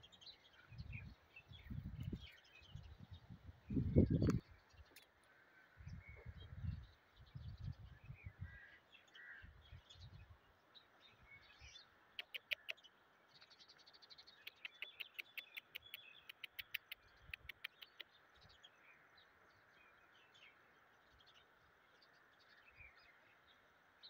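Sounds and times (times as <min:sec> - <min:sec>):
bird chirping: 0:05.8 - 0:23.7.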